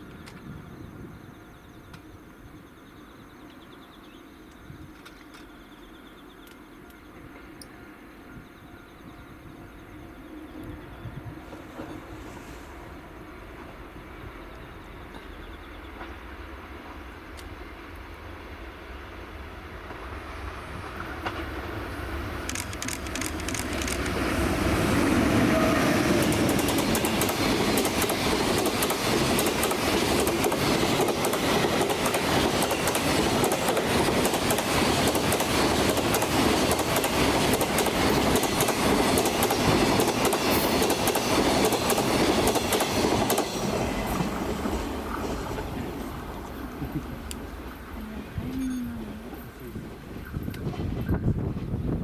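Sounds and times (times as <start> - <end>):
freight train rumble: 0.0 - 52.0
wheels clacking over rail joints: 21.0 - 47.7.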